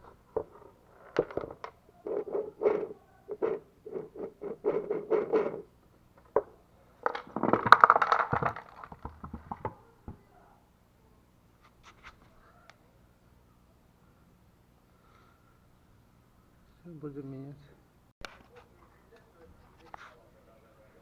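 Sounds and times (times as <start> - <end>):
scraping of machine parts: 0.0 - 9.6.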